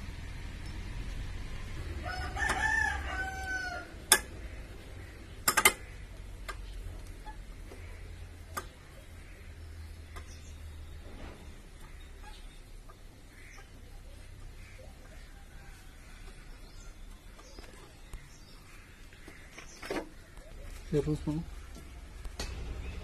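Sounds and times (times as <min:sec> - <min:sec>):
rooster crowing: 0:01.9 - 0:04.0
sharp clicks: 0:05.4 - 0:07.2.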